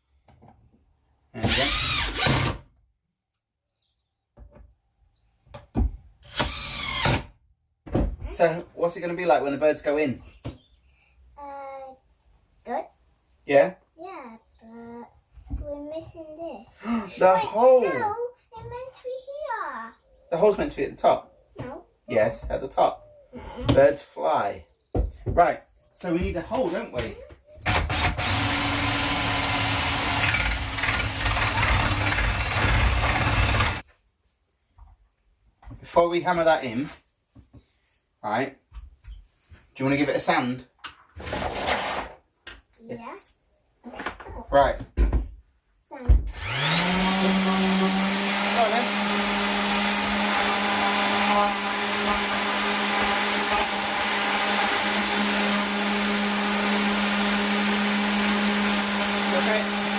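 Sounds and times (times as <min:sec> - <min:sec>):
power drill boring through wood: 0:01.4 - 0:02.7, 0:06.2 - 0:07.4, 0:27.6 - 0:33.8, 0:46.3 - 0:59.9
electric sander on wood: 0:27.7 - 0:33.8, 0:46.3 - 0:59.9.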